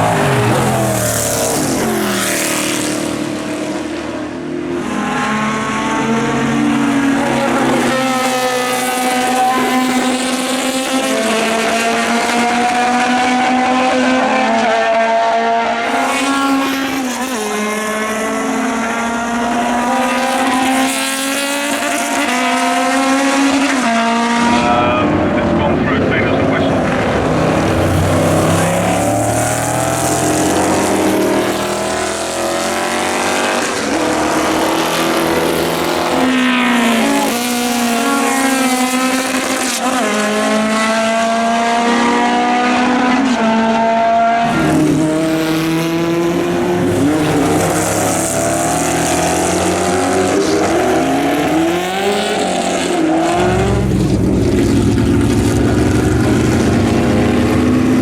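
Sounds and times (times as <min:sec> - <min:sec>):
racing cars at full throttle: 0:00.0 - 0:58.0
deep low rumble: 0:53.5 - 0:57.2.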